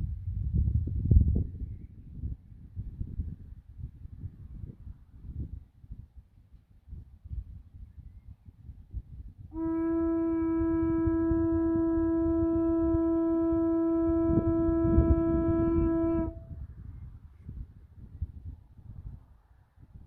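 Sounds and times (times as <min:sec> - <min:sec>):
watering can blown like a horn: 0:09.5 - 0:16.6.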